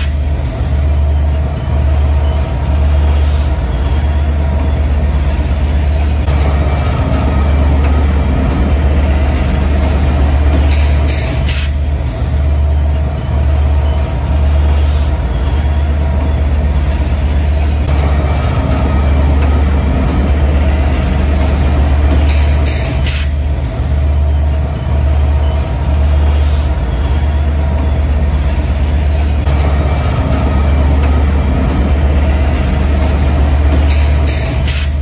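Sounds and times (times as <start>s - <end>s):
train running hum: 0.0s - 35.0s.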